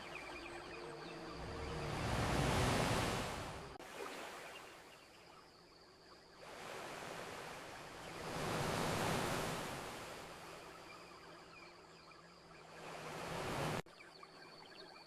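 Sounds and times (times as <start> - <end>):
ocean waves washing onto beach: 0.0 - 4.6, 6.4 - 10.8, 12.6 - 13.8.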